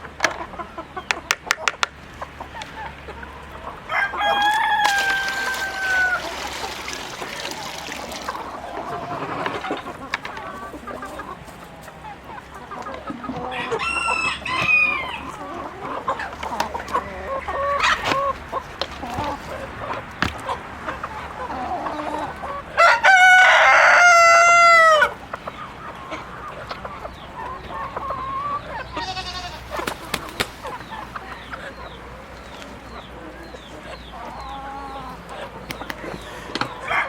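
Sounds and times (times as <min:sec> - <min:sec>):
chickens clucking: 0:00.0 - 0:37.0
rooster crowing: 0:03.8 - 0:06.4, 0:13.4 - 0:15.4, 0:22.8 - 0:25.1, 0:36.8 - 0:37.0.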